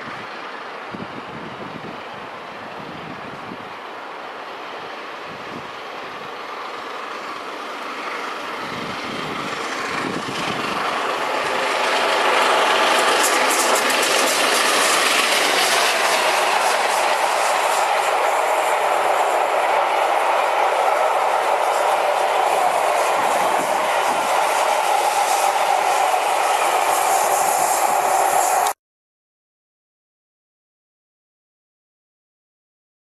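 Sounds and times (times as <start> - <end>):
steam train passing: 0.0 - 28.8
wheels clicking over rail joints: 8.8 - 28.7.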